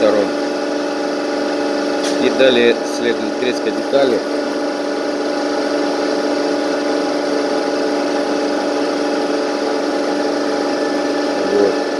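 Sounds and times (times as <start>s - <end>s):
lathe machine hum: 0.0s - 11.9s.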